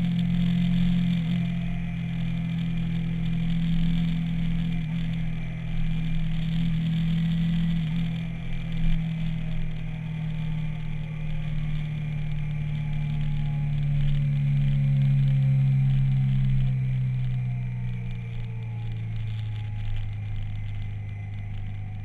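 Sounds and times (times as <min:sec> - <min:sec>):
motorcycle engine running: 0:00.0 - 0:22.0
wind and road noise: 0:00.0 - 0:22.0.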